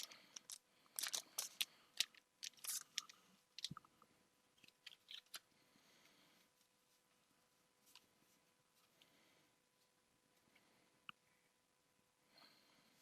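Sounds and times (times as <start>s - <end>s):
trading cards snapping and rustling: 0.0s - 3.7s.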